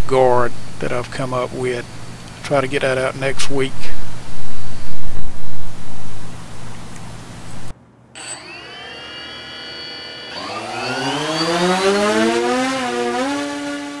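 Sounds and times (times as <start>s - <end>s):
drone motors whining: 8.2s - 14.0s.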